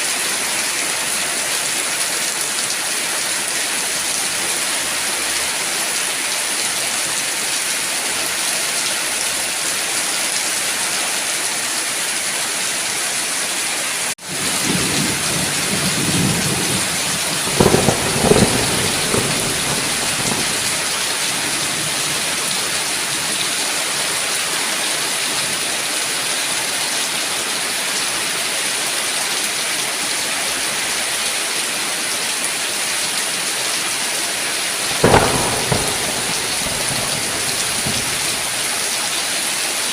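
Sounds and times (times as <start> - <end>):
heavy rain hissing: 1.3 - 27.6, 31.7 - 39.9
thunder rumbling: 14.3 - 23.3, 34.9 - 38.8
sharp thunder claps: 14.4 - 22.6, 34.9 - 38.8.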